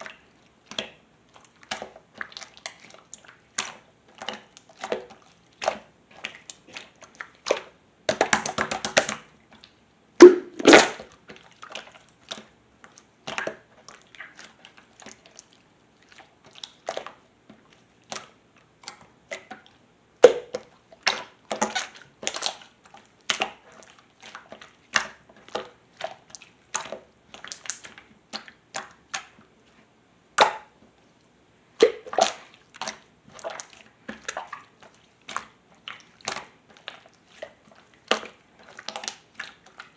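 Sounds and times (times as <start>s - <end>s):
slime squeezed by hand: 10.2s - 11.0s.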